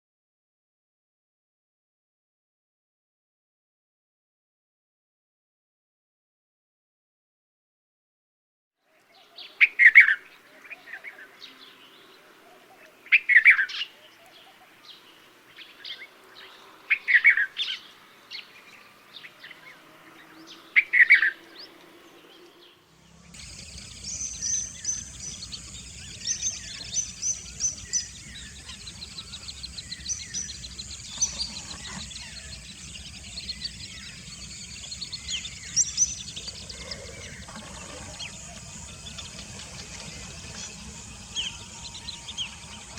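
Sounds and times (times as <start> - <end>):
chorus of high bird chirps: 13.2 - 42.9
low rumbling background noise: 22.8 - 42.9
loud bird call: 23.4 - 42.9.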